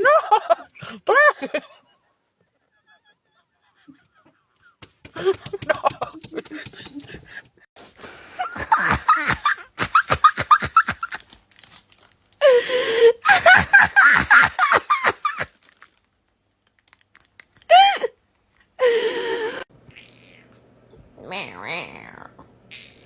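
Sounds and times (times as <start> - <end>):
person laughing hard: 2.6 - 7.6, 8.3 - 11.2, 12.6 - 15.5.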